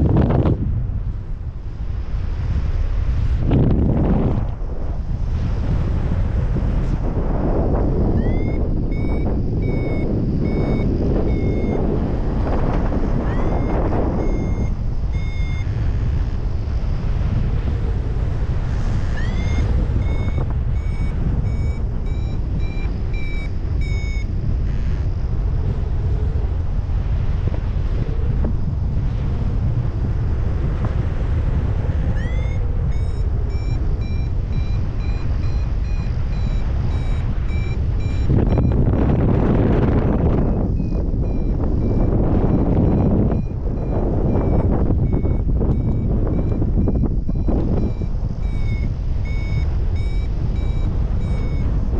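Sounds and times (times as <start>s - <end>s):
wind rumble on microphone: 0.0s - 51.9s
variometer beeping: 6.5s - 26.5s, 31.6s - 51.9s.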